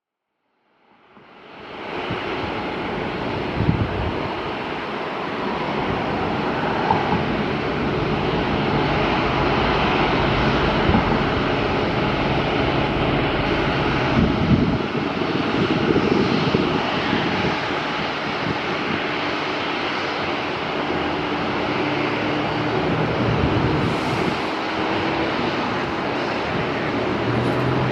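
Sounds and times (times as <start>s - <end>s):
jet engines rumbling: 1.0s - 27.9s
wind buffeting microphone: 1.6s - 27.9s.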